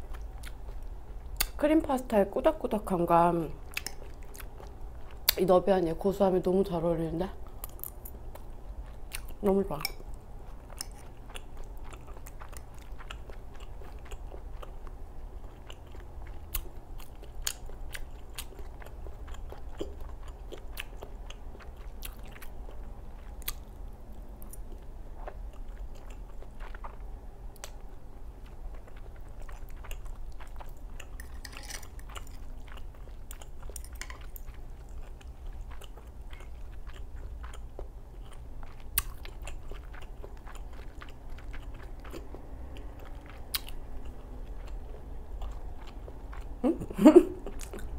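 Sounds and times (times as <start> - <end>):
person chewing and lip-smacking: 0.0 - 1.6, 3.5 - 5.4, 7.4 - 47.9
steady low hum: 0.0 - 47.9.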